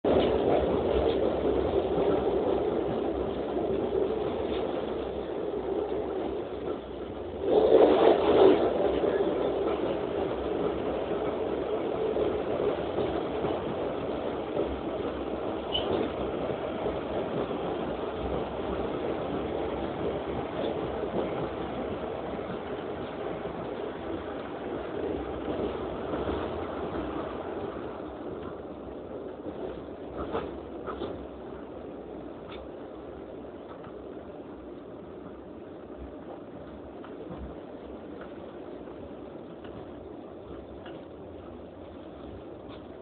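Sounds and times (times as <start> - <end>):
train running rumble: 0.0 - 43.0
train rushing: 0.0 - 43.0.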